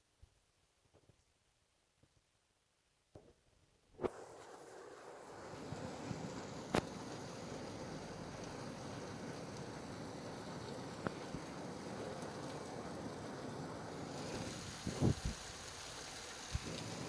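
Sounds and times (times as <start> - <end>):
steady rain falling: 4.2 - 17.0.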